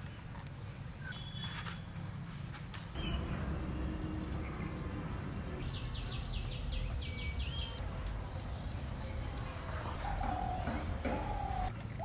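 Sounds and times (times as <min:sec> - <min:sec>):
bird whistle: 0:01.0 - 0:01.8
bird chirping: 0:01.0 - 0:02.0, 0:03.0 - 0:09.2.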